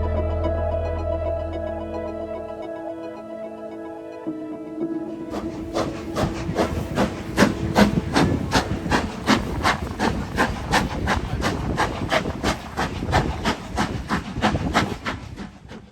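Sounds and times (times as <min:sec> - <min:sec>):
steam locomotive chuffing: 0:05.1 - 0:15.9.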